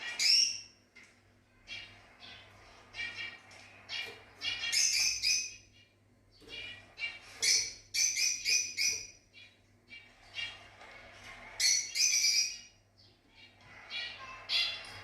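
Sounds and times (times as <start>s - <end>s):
lovebirds chirping: 1.5s - 10.1s.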